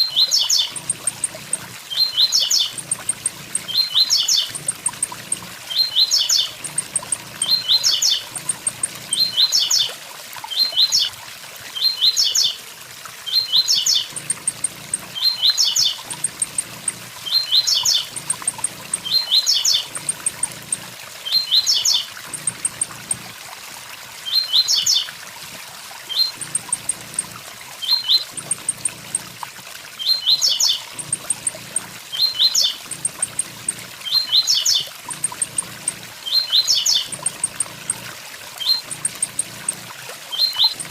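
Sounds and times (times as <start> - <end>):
small bird singing short high phrase: 0.0 - 9.9, 13.3 - 23.0, 30.0 - 38.0.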